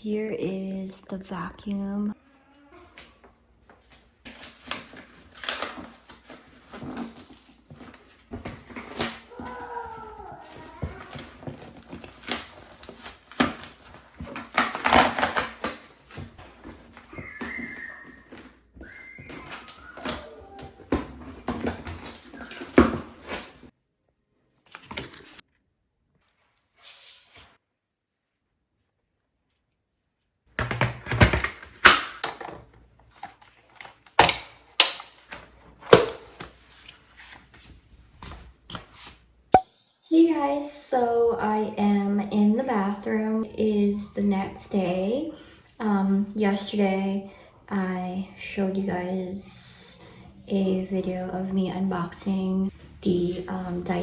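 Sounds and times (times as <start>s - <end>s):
packaging rustling: 3.7s - 23.7s.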